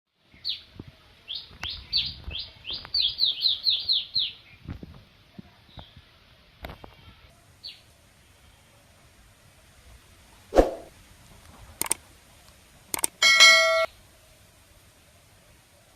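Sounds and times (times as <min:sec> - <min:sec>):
sharp clicks: 0:11.8 - 0:12.0, 0:12.9 - 0:13.2.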